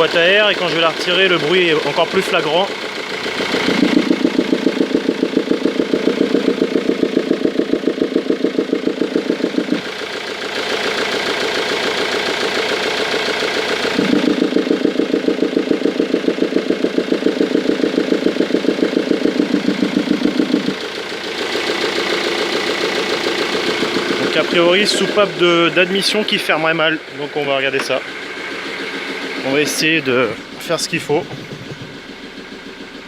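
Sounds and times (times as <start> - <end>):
diesel engine idling: 0.0 - 33.0
fast regular clacking: 0.7 - 9.8, 12.6 - 25.9, 27.6 - 33.0.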